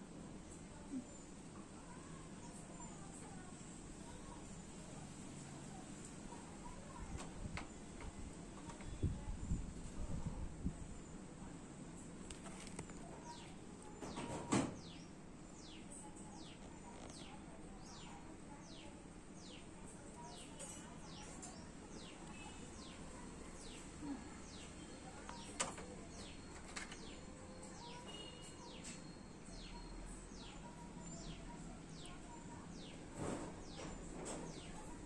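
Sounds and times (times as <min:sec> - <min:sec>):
birds chirping: 0:12.3 - 0:35.0.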